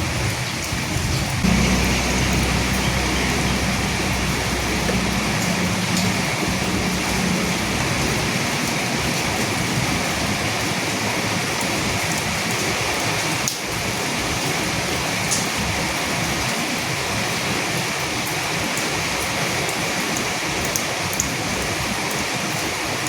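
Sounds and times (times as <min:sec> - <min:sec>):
steady rain: 0:00.0 - 0:23.0
raindrop ticks: 0:01.2 - 0:10.4.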